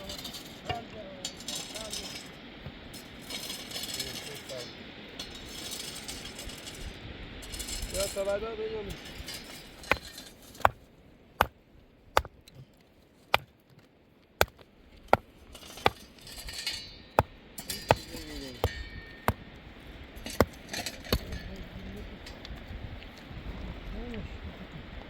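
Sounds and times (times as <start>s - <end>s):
hand tool striking blows: 9.1s - 10.8s, 14.4s - 19.5s, 20.2s - 21.4s.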